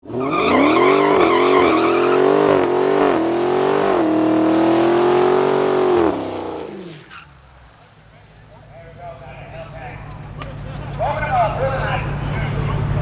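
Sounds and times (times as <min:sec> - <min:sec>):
car engine accelerating hard: 0:00.0 - 0:08.0, 0:09.5 - 0:13.0
tyre squeal: 0:00.1 - 0:02.8.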